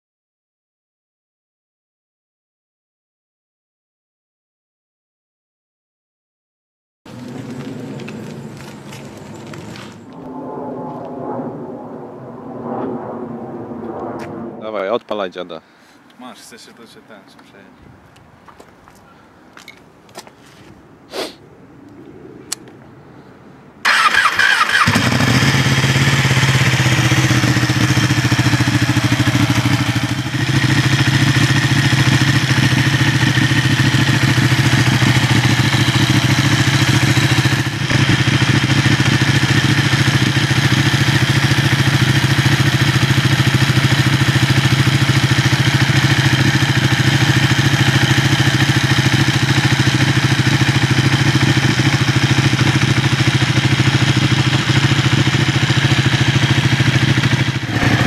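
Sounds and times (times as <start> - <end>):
motorcycle engine starting and idling: 23.8 - 58.0.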